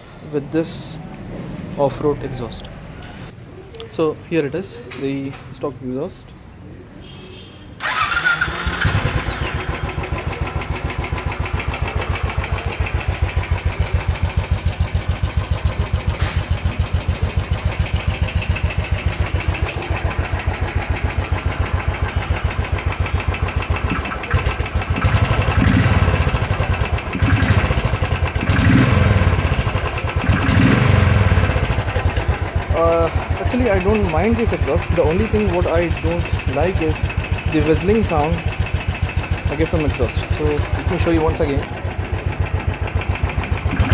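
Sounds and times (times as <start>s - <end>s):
motorcycle engine idling and revving: 7.8s - 43.9s.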